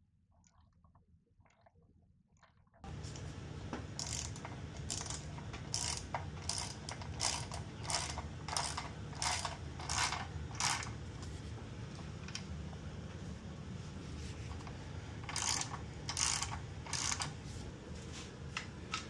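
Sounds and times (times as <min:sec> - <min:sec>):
steady low hum: 0:02.8 - 0:19.0
ratchet wrench ratcheting: 0:04.0 - 0:11.3, 0:14.6 - 0:17.4.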